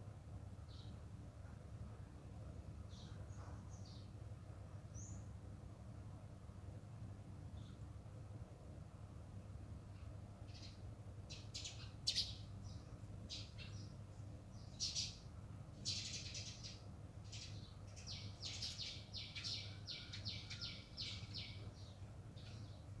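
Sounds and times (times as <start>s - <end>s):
bird chirping: 2.9s - 4.2s, 4.9s - 5.3s, 9.9s - 23.0s.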